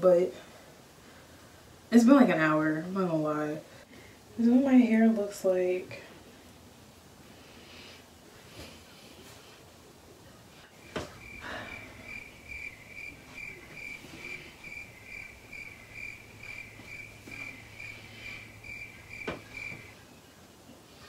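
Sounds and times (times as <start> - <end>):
faint hum: 0.0 - 21.0
cricket chirping: 11.1 - 20.0.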